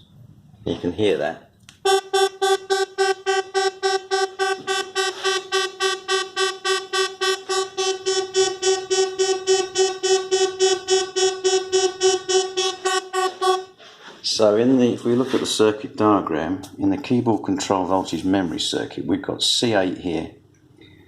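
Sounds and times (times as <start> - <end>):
pulsing buzzy synthesizer note: 1.8 - 13.8.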